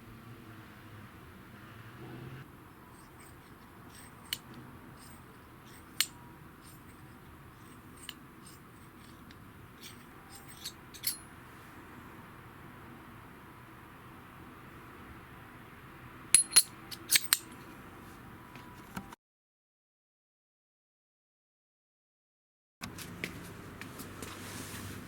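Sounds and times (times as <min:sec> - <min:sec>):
metal parts clicking and clinking: 0:02.9 - 0:11.4, 0:16.3 - 0:17.6.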